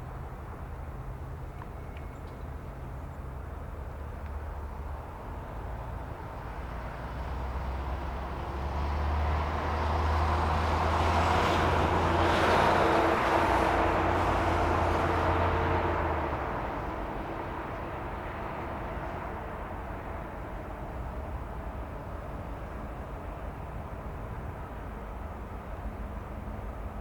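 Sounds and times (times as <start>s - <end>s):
vehicle passing by: 8.5s - 16.7s.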